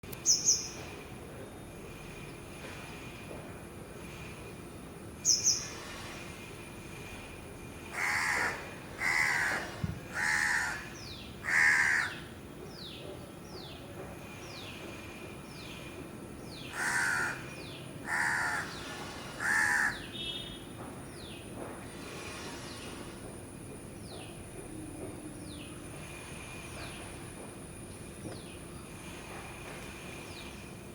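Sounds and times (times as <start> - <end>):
crow cawing: 7.9 - 12.3, 16.7 - 18.8, 19.4 - 20.1.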